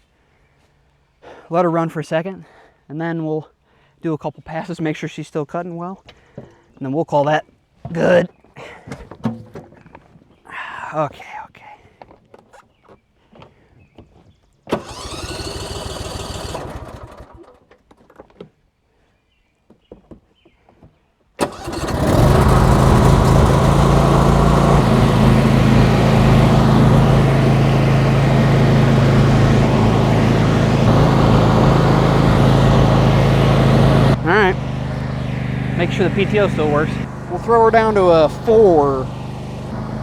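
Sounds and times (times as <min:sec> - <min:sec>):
lawn tractor engine starting: 0:14.7 - 0:17.7, 0:21.4 - 0:40.0.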